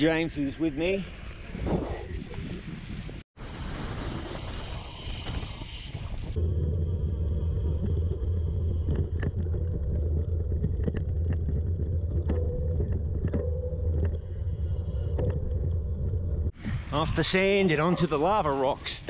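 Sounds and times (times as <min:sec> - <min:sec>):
bike tyres rumbling on gravel: 0:03.8 - 0:16.6
grit clicks and rattles: 0:07.7 - 0:14.2.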